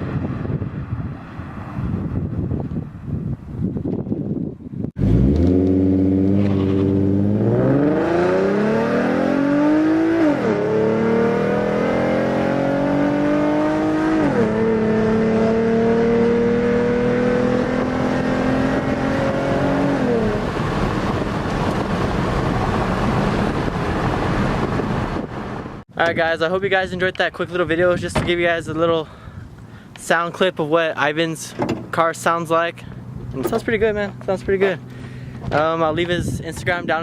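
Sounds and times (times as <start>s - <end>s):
car exhaust accelerating: 0.0s - 25.8s
road and wind noise: 0.0s - 37.0s.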